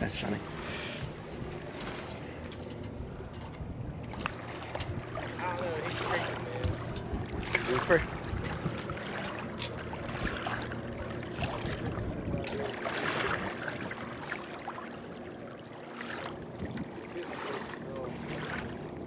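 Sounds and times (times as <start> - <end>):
water washing against hull: 0.0 - 19.0.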